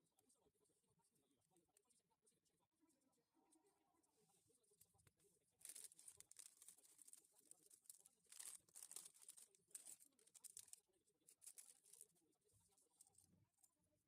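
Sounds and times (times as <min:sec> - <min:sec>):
plastic rustling and crinkling: 0:04.8 - 0:13.7.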